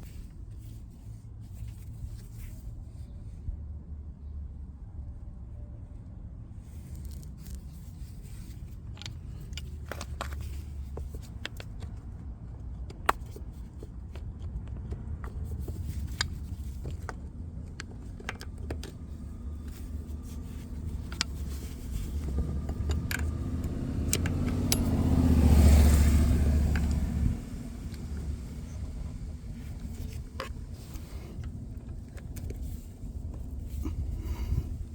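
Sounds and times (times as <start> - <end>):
spanner clicks and scrapes: 6.8 - 34.9
vehicle passing: 19.4 - 31.4.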